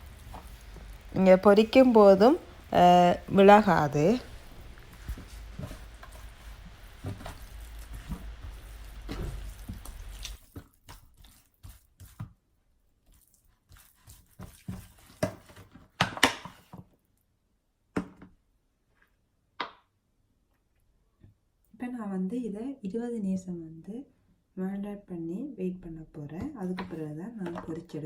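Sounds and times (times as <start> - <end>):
low background hum: 0.0 - 10.4
wet squelches of chicken in bowl: 4.4 - 12.3, 13.0 - 15.3.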